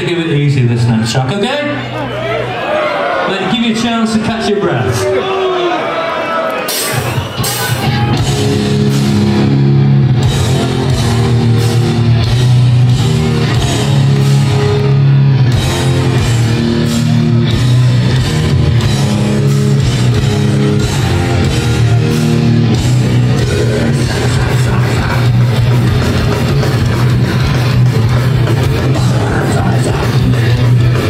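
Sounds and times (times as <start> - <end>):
live metal band playing: 6.6 - 31.0.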